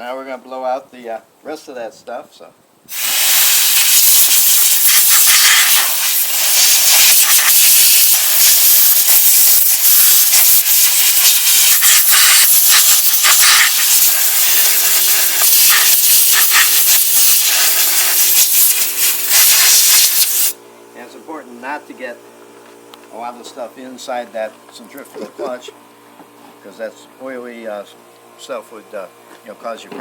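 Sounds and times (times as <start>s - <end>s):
compressed air hissing: 2.9s - 20.6s.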